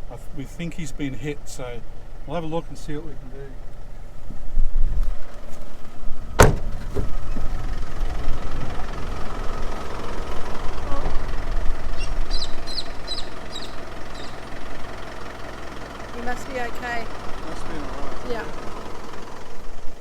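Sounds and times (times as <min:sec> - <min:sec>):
vehicle engine idling: 0:00.0 - 0:20.0
sharp thump: 0:06.4 - 0:07.5
bird squawking: 0:10.6 - 0:14.7.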